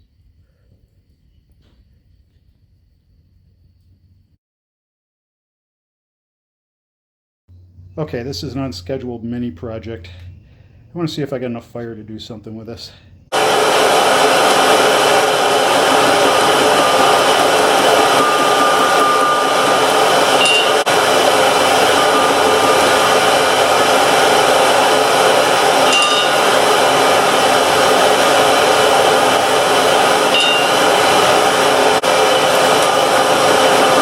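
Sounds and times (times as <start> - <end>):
electric air blower running: 13.3 - 34.0.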